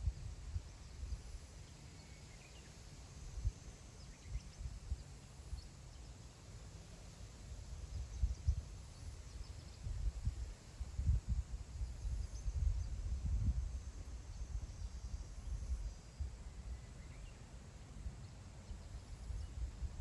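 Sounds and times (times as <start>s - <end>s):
faint bird chirps: 0.6s - 6.3s, 7.8s - 20.0s
wind gusting on microphone: 7.8s - 16.8s.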